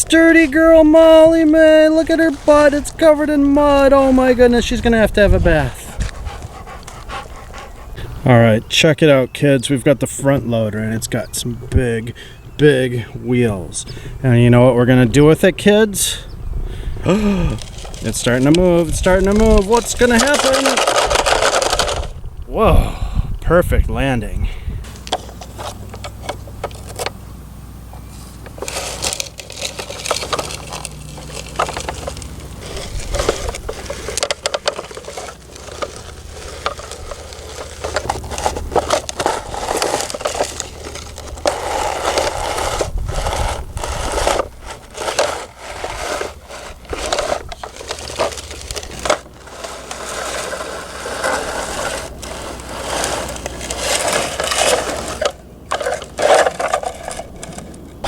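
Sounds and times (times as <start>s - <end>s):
toy digger scraping through dirt: 0.0s - 8.1s, 17.1s - 22.2s, 28.1s - 58.0s
low steady hum: 0.0s - 58.0s.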